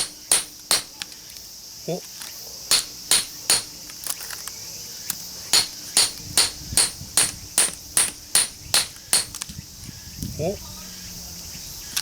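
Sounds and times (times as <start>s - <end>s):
hammer striking steel chisel: 0.0s - 1.0s, 2.7s - 3.8s, 5.6s - 9.4s
insects chirring: 0.0s - 12.0s.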